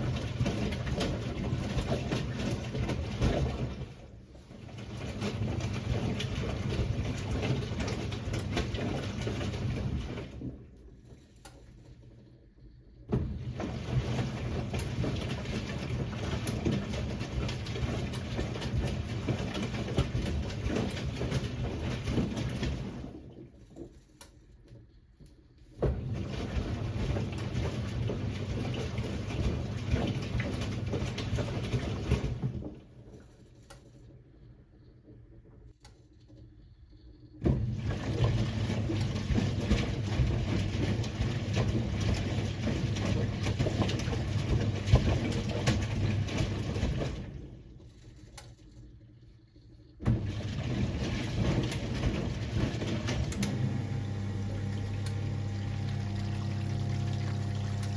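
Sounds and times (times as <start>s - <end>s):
washing machine drum tumbling: 0.0s - 10.6s, 13.1s - 23.3s, 25.8s - 33.0s, 37.4s - 47.6s, 50.0s - 57.9s.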